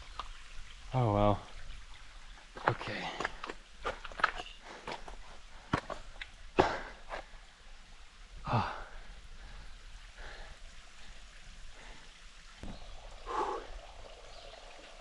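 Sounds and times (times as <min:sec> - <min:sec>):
person breathing hard: 0:13.2 - 0:13.7.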